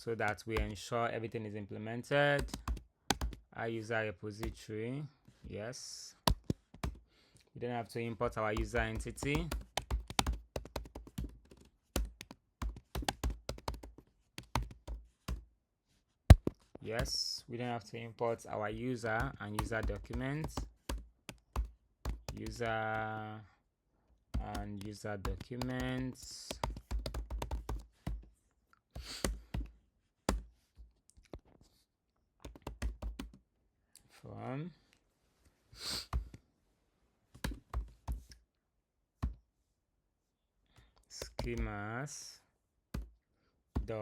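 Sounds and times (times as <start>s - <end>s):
typing on computer keyboard: 2.4s - 3.4s, 8.5s - 15.4s, 19.2s - 23.0s, 24.4s - 28.2s, 32.4s - 33.4s.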